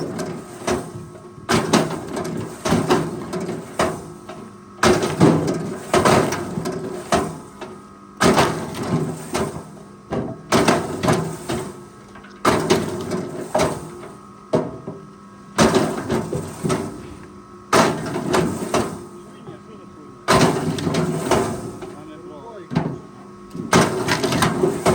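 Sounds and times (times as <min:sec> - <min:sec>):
faint engine hum: 0:14.8 - 0:24.9.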